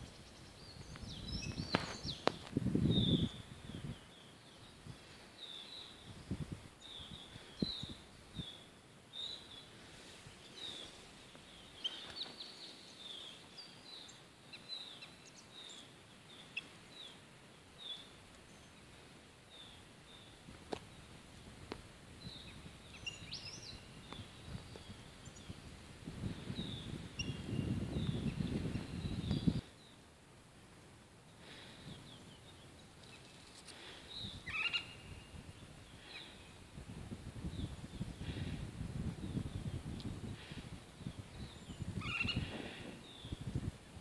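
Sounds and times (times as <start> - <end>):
bird chirping: 0.0 - 4.8, 22.2 - 25.6, 26.4 - 30.0, 31.9 - 36.6, 41.0 - 43.4
faint outdoor hiss: 0.0 - 44.0.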